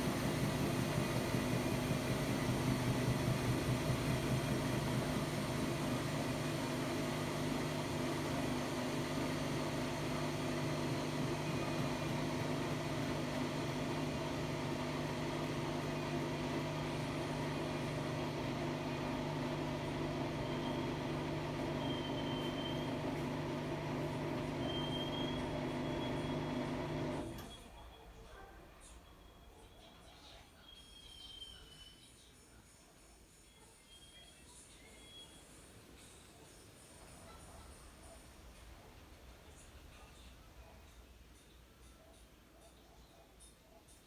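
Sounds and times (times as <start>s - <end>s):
washer-dryer humming: 0.0s - 27.7s
faint high whistle: 21.8s - 22.9s, 24.6s - 26.3s, 30.6s - 32.3s.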